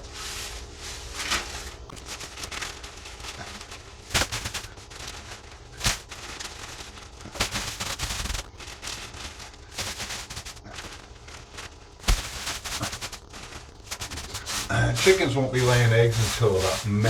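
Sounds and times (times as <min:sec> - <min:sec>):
rustling and scraping: 0:00.0 - 0:17.0.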